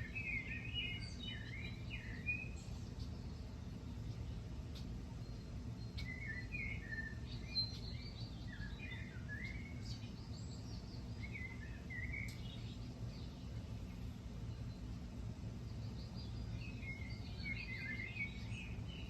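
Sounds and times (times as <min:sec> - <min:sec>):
songbird warbling: 0:00.0 - 0:14.9, 0:15.6 - 0:19.0
low outdoor rumble: 0:00.0 - 0:19.0.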